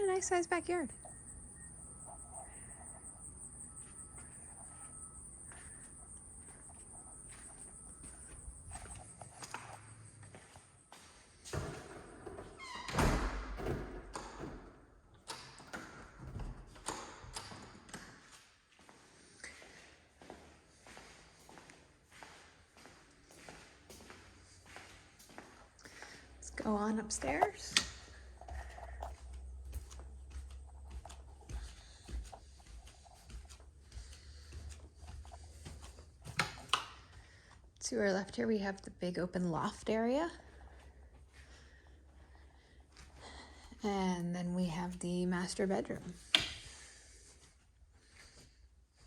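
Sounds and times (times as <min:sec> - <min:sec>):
footsteps climbing stairs: 0:07.3 - 0:18.1, 0:24.7 - 0:37.6
door squeak: 0:11.6 - 0:14.7
footsteps on hard floor: 0:20.2 - 0:37.5.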